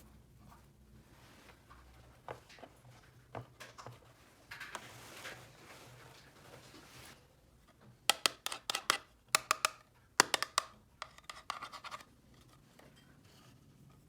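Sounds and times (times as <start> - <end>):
plastic toy pieces clicking: 8.1 - 11.6.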